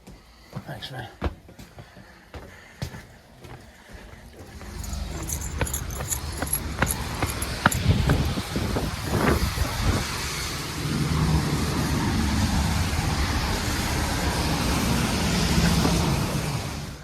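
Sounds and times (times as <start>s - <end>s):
engine-like rumble: 4.2s - 17.0s.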